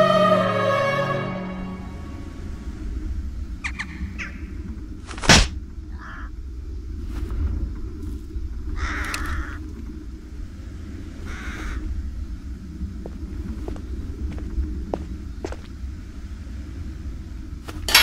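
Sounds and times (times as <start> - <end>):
low rumble: 1.2 - 18.0
harsh bird calls: 5.8 - 6.4, 8.7 - 9.7, 11.2 - 11.9.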